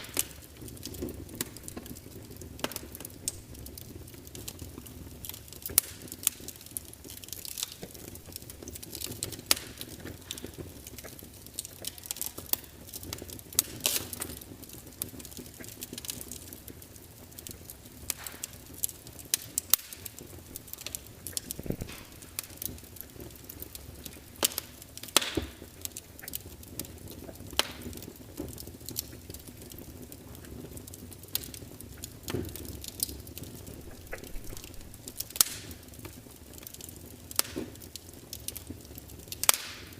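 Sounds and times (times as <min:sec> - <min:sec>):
logs popping and snapping: 0:00.0 - 0:16.5, 0:17.3 - 0:29.8, 0:30.9 - 0:38.7, 0:39.3 - 0:39.9
rush of flame: 0:17.8 - 0:25.6, 0:32.3 - 0:36.0.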